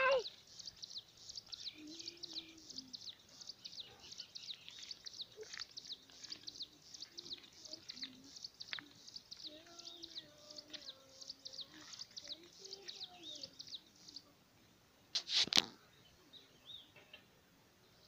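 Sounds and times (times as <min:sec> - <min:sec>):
birds chirping: 0:00.0 - 0:14.7, 0:15.7 - 0:18.0.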